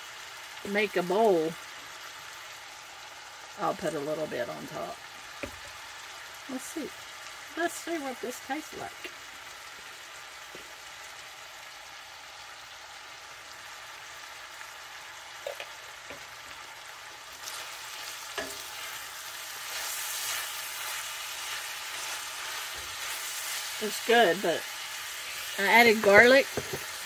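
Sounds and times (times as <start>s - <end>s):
food sizzling in a skillet: 0.0s - 27.0s
wooden spoon stirring in a pan: 17.2s - 27.0s.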